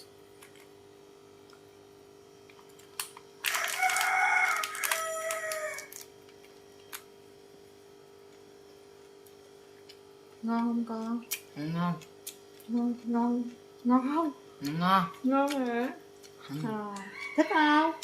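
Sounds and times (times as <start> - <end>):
faint steady hum: 0.0 - 18.0
rooster crowing: 3.5 - 6.0, 16.8 - 17.9.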